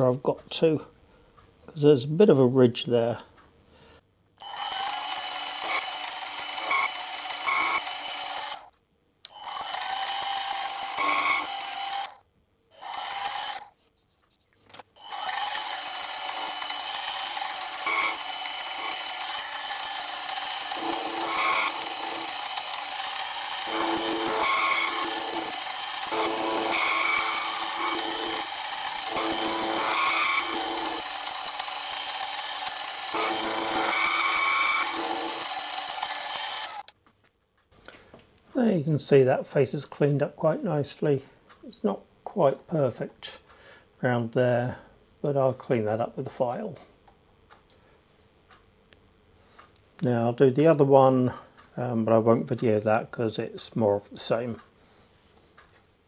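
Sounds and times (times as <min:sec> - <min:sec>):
milling machine cutting: 0:04.4 - 0:08.7, 0:09.3 - 0:12.2, 0:12.8 - 0:13.7, 0:15.0 - 0:36.9.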